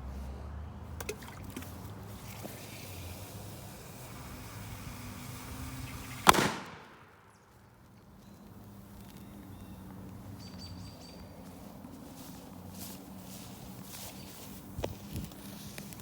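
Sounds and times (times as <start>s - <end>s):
sharp explosive bang: 6.2s - 7.2s.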